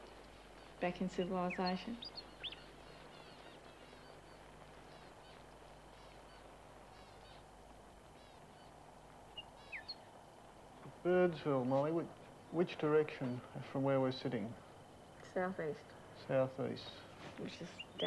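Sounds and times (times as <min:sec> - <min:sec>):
background hiss: 0:00.0 - 0:18.0
small birds twittering: 0:00.0 - 0:18.0.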